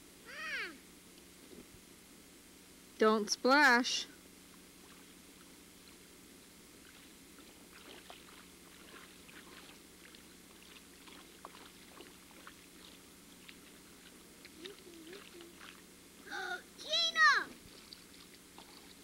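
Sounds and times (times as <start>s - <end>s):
lake water lapping: 4.8s - 6.0s, 6.8s - 15.9s, 17.6s - 19.0s.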